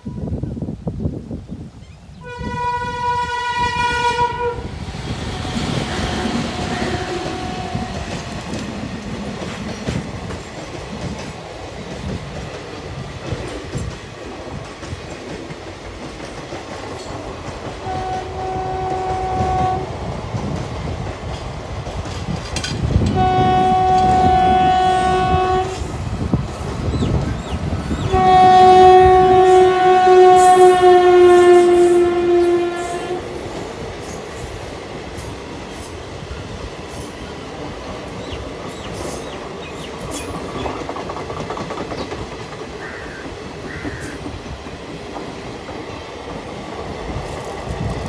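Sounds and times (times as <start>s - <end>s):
train rumbling over rail joints: 0.0s - 48.0s
train horn blasts: 2.2s - 4.8s, 5.5s - 8.3s, 17.8s - 19.9s, 23.0s - 25.9s, 28.0s - 33.4s.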